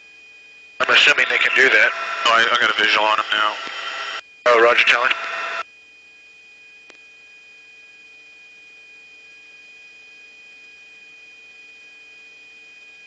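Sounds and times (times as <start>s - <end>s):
electronic whine and hum: 0.4s - 13.0s
radio channel hiss: 0.8s - 5.6s.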